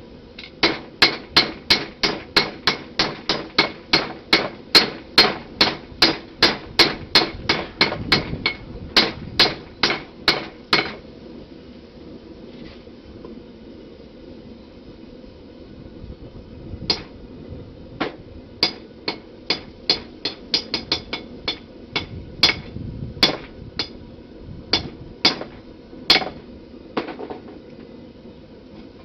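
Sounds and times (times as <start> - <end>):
steady rushing noise: 0.0 - 29.0
hammer striking steel on anvil: 0.6 - 11.0, 16.9 - 17.1, 18.0 - 24.0, 24.7 - 26.4.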